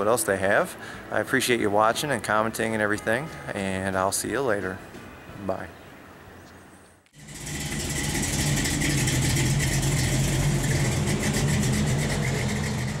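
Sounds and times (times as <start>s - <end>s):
car engine running: 7.2s - 13.0s.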